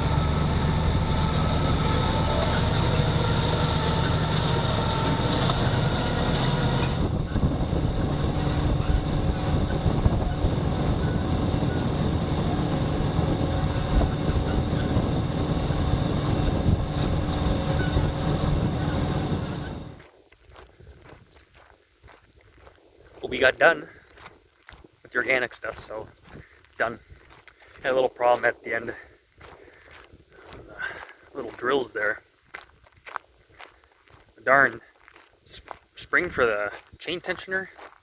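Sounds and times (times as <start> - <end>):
high whine: 0.0 - 20.1
tractor engine running: 0.0 - 20.1.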